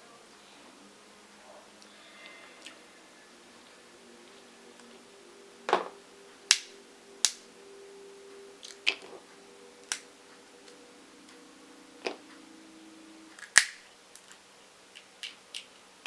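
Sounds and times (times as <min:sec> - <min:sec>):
crab shells cracking: 0:13.4 - 0:15.8.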